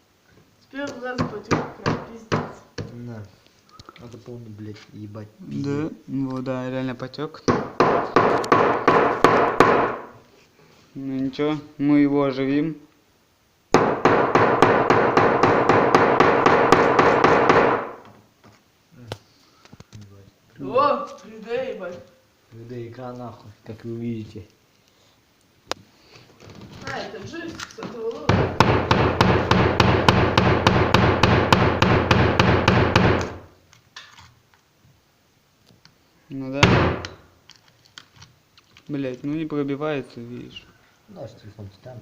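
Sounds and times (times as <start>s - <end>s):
hammer striking phone: 7.5s - 10.1s, 13.8s - 18.0s, 28.3s - 33.5s, 36.6s - 37.2s.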